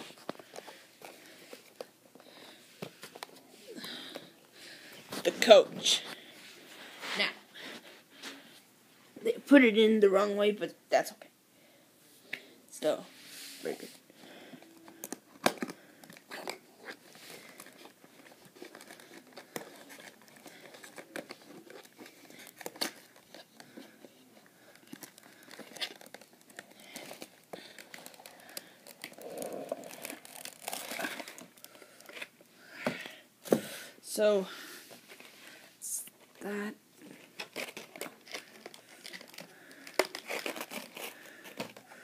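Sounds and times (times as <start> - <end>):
plastic packaging crinkling: 14.8 - 32.3, 37.1 - 42.0.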